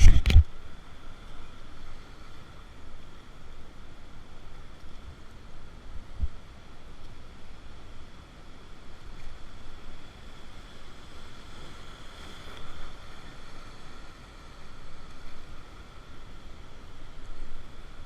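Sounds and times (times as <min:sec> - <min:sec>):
wind buffeting microphone: 0:00.0 - 0:00.5.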